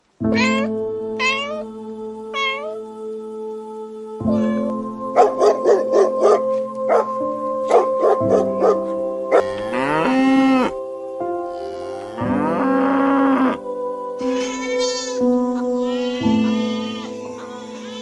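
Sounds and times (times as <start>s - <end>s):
soft background music: 0.0s - 18.0s
cat meowing: 0.3s - 1.6s, 2.4s - 2.8s, 4.3s - 4.8s
dog barking: 5.2s - 7.1s, 7.7s - 9.5s.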